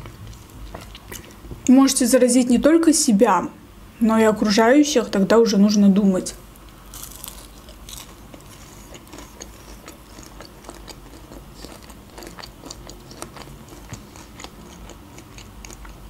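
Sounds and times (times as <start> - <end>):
crunchy chewing: 0.0 - 1.4, 6.6 - 16.0.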